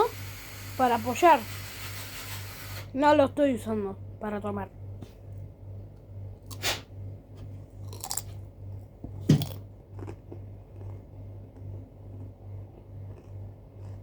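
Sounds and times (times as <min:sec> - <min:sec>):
person chewing crunchy food: 0:06.4 - 0:14.0.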